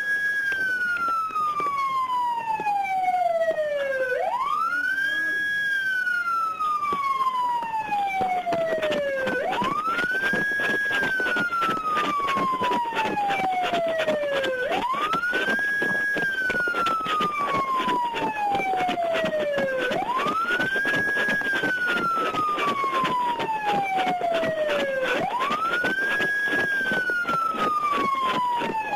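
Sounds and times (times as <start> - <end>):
police siren wailing: 0.0 - 28.9
dense crackle: 4.2 - 28.9.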